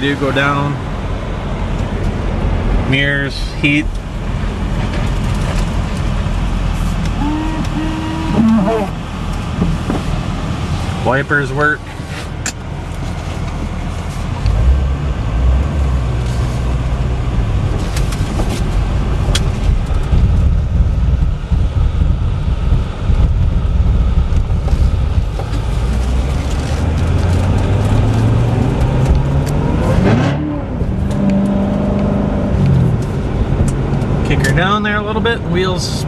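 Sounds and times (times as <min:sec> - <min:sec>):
sports car engine revving: 0:00.0 - 0:34.6
road noise: 0:00.0 - 0:36.0.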